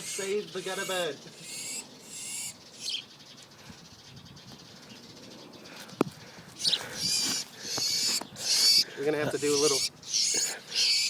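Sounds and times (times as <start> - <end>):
small bird squawking: 0.0 - 3.1, 6.6 - 11.0.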